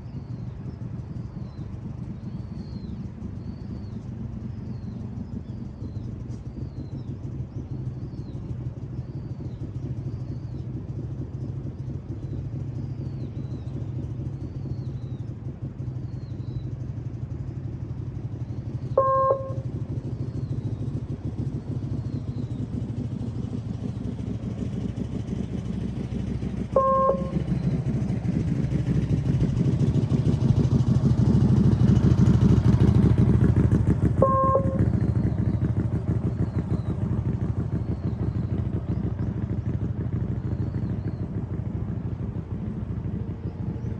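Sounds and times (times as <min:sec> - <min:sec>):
motorcycle engine running: 0:00.0 - 0:43.9
short beeps: 0:19.0 - 0:19.6, 0:26.8 - 0:27.4, 0:34.2 - 0:34.9.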